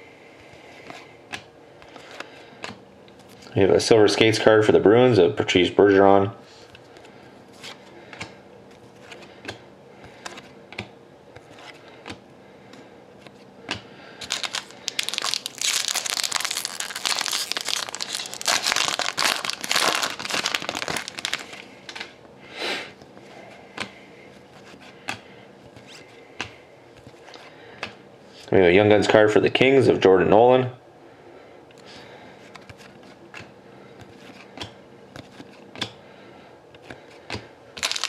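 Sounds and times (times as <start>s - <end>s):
foil wrapper crinkling and tearing: 14.2s - 21.7s, 37.8s - 38.0s.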